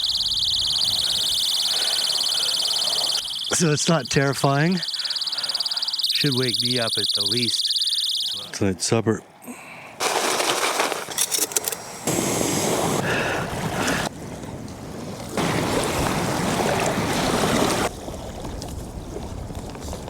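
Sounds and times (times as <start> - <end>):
camp stove burner hissing: 11.8 - 14.0.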